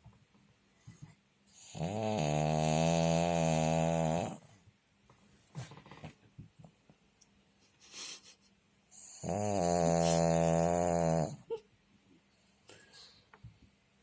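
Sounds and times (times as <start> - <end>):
dog snoring: 1.5 - 4.5, 8.9 - 11.5.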